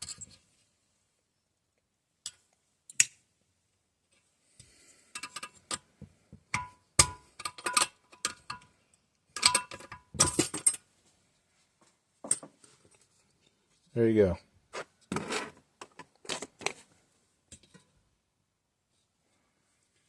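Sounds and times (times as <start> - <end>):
metal parts clinking: 9.4 - 10.8.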